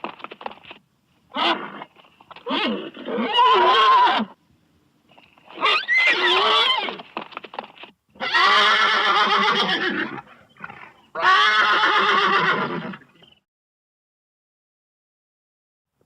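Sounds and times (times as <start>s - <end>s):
horse neighing: 1.3s - 4.4s, 5.5s - 7.0s, 8.2s - 13.1s.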